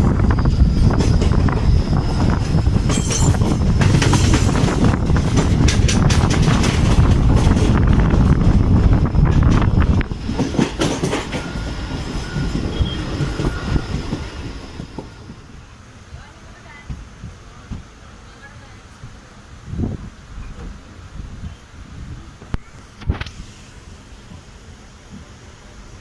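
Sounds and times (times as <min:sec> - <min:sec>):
train wheels rumbling on rails: 0:00.0 - 0:26.0
clacks over rail joints: 0:02.8 - 0:08.4, 0:09.2 - 0:15.4.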